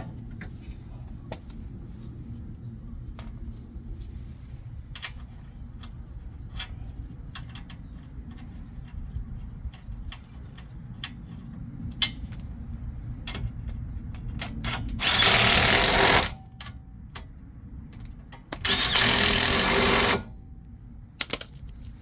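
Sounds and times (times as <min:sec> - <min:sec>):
power tool running: 0:15.0 - 0:16.4, 0:18.7 - 0:20.3.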